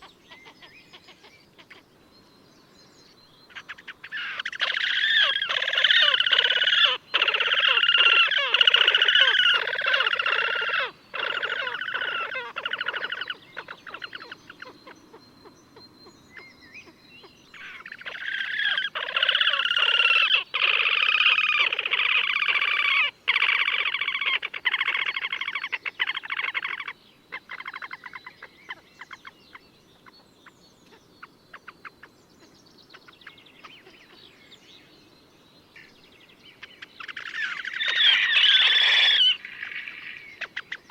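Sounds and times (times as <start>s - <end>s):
grebe trilling: 3.5s - 15.0s, 17.6s - 26.9s, 37.0s - 40.9s.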